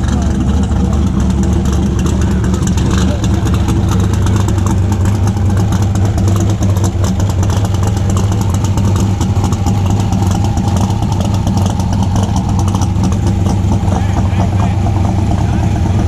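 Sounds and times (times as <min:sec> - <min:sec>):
exhaust popping: 0:00.0 - 0:16.0
race car engine idling loudly: 0:00.0 - 0:16.0.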